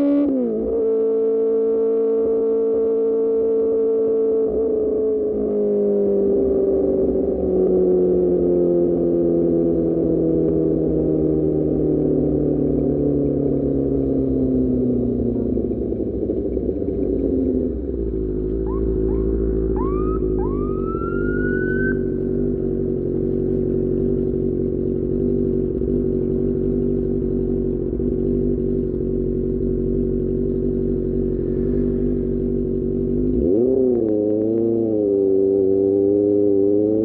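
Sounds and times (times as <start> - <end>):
motorcycle engine revving: 0.0 - 37.0
rising siren-like whoops: 18.6 - 22.2.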